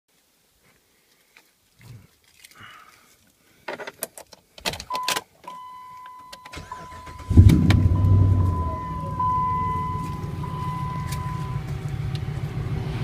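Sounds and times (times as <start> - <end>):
truck engine cranking and starting: 6.4 - 13.0
steady high-pitched tone: 6.6 - 12.0.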